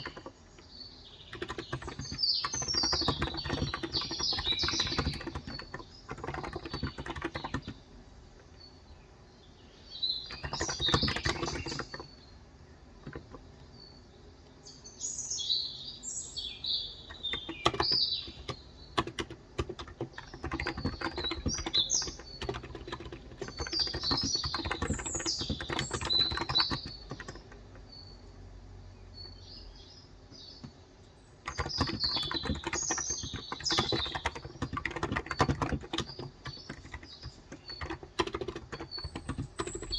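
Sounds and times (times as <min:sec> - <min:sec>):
typing on keyboard: 0:00.0 - 0:07.9, 0:10.2 - 0:12.2, 0:13.0 - 0:13.7, 0:17.1 - 0:27.8, 0:31.4 - 0:39.9
birds chirping: 0:00.0 - 0:39.9.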